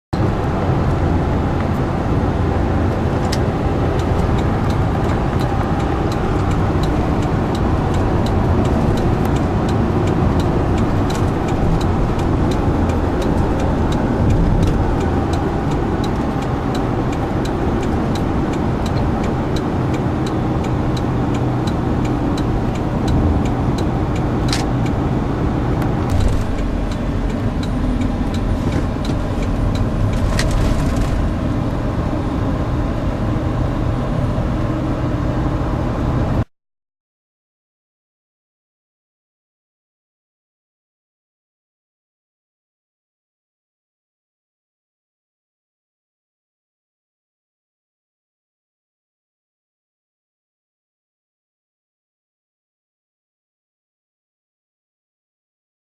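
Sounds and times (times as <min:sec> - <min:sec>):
motor vehicle rumble: 0:00.1 - 0:36.5
sharp click: 0:24.4 - 0:24.7, 0:25.8 - 0:31.2.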